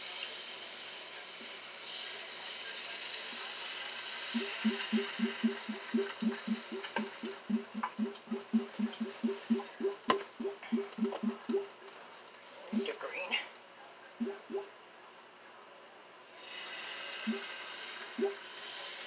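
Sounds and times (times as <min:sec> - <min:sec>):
batter sizzling on griddle: 0:00.0 - 0:04.3, 0:16.4 - 0:19.0
rapid low pitched blips: 0:04.4 - 0:11.8, 0:14.2 - 0:14.7.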